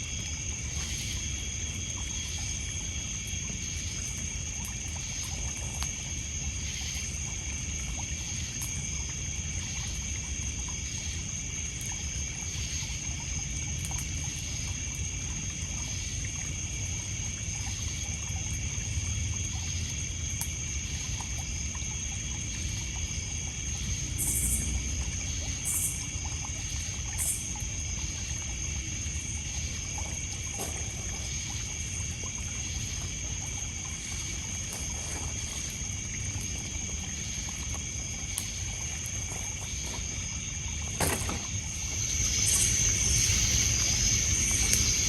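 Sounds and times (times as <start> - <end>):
crickets and insects chirping: 0.0 - 45.0
water lapping on pebbles: 0.0 - 45.0
campfire crackling: 23.3 - 45.0.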